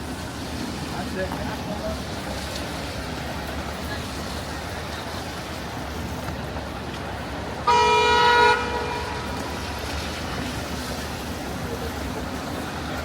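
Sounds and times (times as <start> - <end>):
city street traffic hum: 0.0 - 13.0
vehicle horn honk: 7.7 - 9.3.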